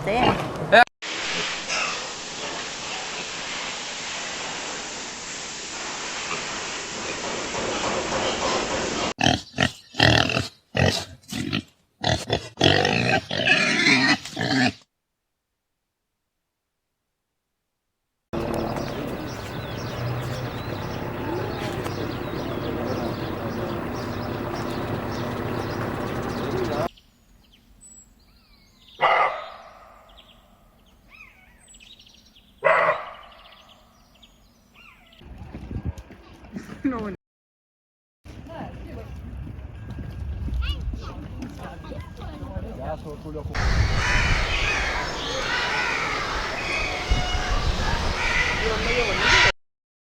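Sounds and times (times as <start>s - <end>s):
farm animal calling: 18.4s - 26.9s, 43.6s - 49.5s
small birds chirping: 18.4s - 35.3s, 43.5s - 49.5s.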